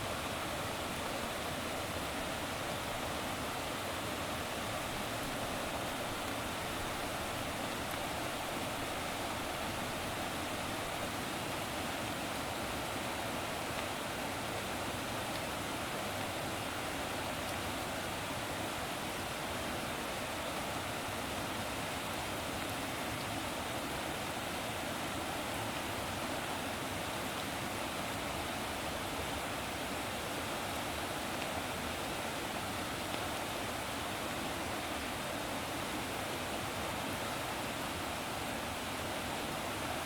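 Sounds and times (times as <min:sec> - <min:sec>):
water rushing: 0:00.0 - 0:40.0.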